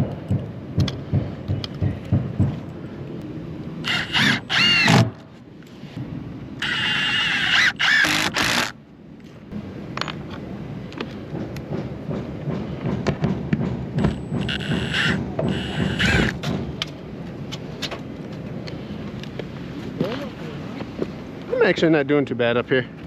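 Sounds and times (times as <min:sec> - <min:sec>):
clatter and knocking of work: 0:00.0 - 0:02.6, 0:11.0 - 0:17.0
power tool running: 0:03.8 - 0:05.1, 0:06.6 - 0:08.8, 0:14.4 - 0:16.4.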